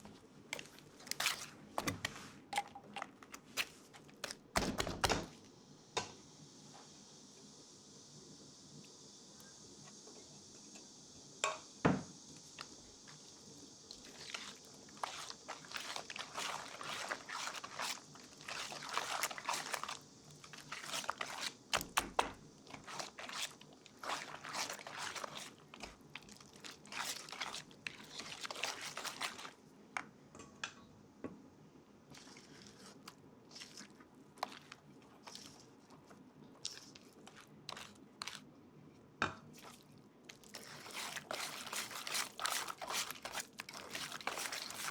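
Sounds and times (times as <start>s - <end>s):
crunching scraping strokes: 13.9s - 29.6s, 36.6s - 38.4s, 39.6s - 44.9s.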